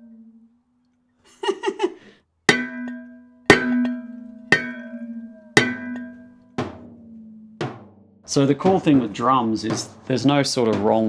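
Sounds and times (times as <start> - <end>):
metal pot lid ringing when struck: 2.5 - 7.5.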